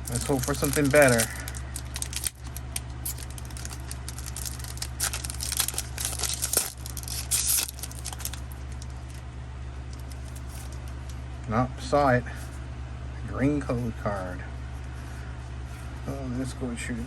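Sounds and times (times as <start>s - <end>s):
foil wrapper tearing and crinkling: 0.0s - 9.2s, 9.9s - 11.1s
steady low hum: 0.0s - 17.0s.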